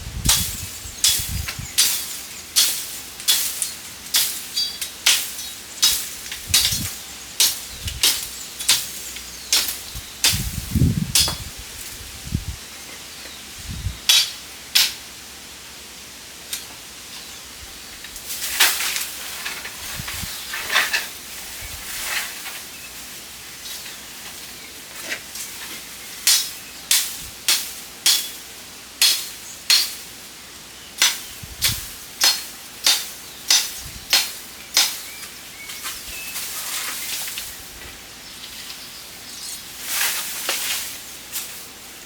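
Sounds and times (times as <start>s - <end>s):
hand tool striking wood: 0.3s - 11.5s, 26.2s - 28.4s, 29.0s - 30.0s, 31.0s - 36.0s
scraping and rustling: 18.0s - 26.1s, 35.7s - 42.0s.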